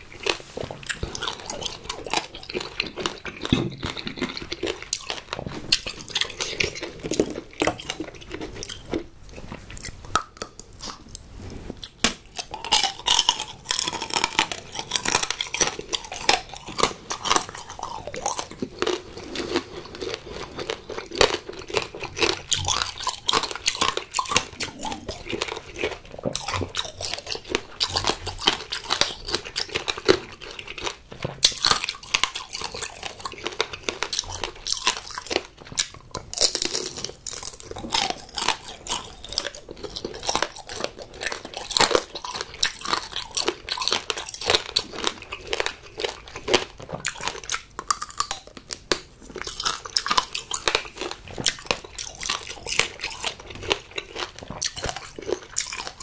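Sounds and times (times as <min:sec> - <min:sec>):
chewing: 0:00.0 - 0:56.0
crunching candy shell: 0:11.8 - 0:56.0.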